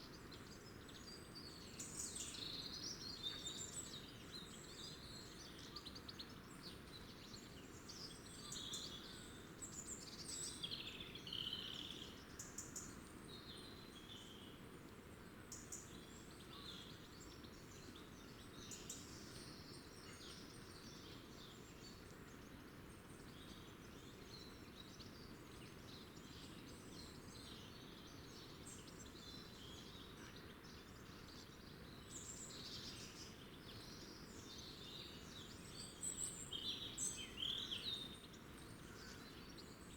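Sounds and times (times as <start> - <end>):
faint background hiss: 0.0 - 39.9
small birds chirping: 15.4 - 39.9.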